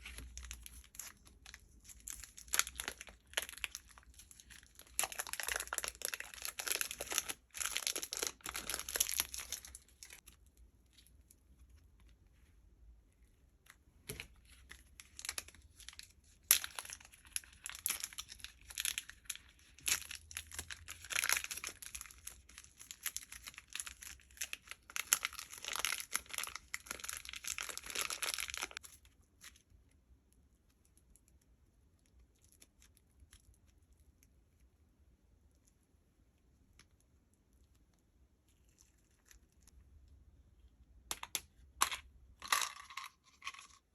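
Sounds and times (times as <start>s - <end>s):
slime crackling and tearing: 0.0s - 10.3s, 14.8s - 29.8s.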